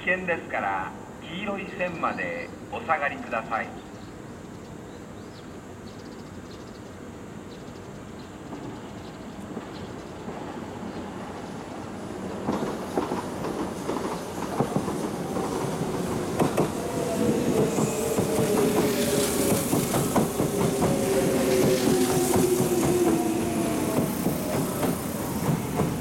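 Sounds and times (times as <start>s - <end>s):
electric train whine: 7.3s - 26.0s
train wheels clacking over rail joints: 12.4s - 26.0s
high hiss: 13.8s - 26.0s.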